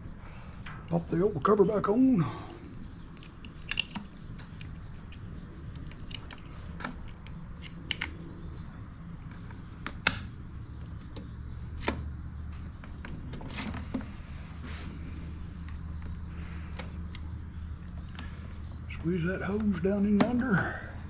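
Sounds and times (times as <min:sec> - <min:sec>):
steady low hum: 0:00.0 - 0:21.0
plastic parts clicking: 0:02.9 - 0:08.6.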